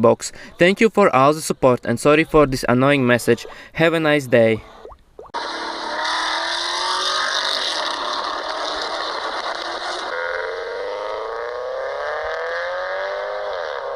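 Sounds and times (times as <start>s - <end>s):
car engine accelerating: 5.4s - 13.9s.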